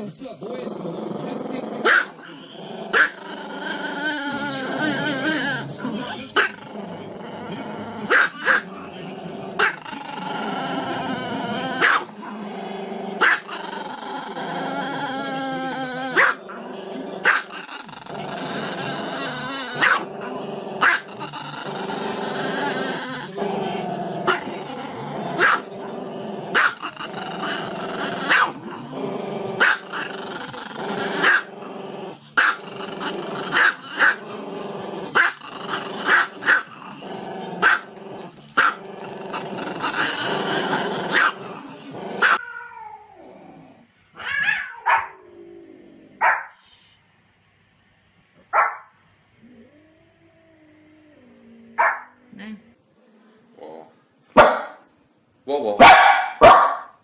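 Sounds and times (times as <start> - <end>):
dog growling: 0.0 - 46.6, 49.4 - 54.0
dogs barking: 1.8 - 2.2, 2.9 - 3.2, 8.1 - 8.7, 11.8 - 12.1, 13.2 - 13.5, 16.2 - 16.4, 19.8 - 20.1, 25.4 - 25.7, 29.6 - 30.0, 41.1 - 41.4, 44.4 - 45.2, 46.2 - 46.6, 48.5 - 48.9, 51.8 - 52.1, 54.4 - 54.8, 55.8 - 57.0.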